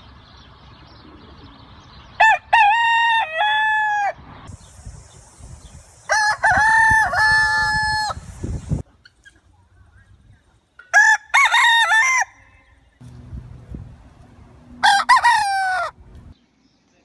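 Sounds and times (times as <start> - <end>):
rooster crowing: 2.2 - 4.2, 6.1 - 8.2, 10.9 - 12.8, 14.7 - 16.0
steady high hiss: 4.5 - 8.9.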